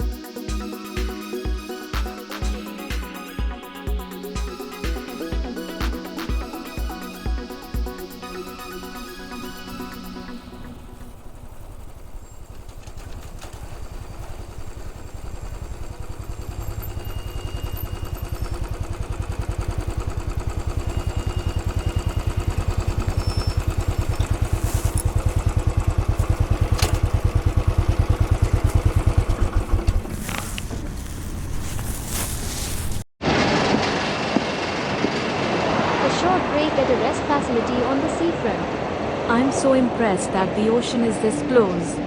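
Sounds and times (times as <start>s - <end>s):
single-cylinder motorcycle engine running: 0.0s - 31.1s.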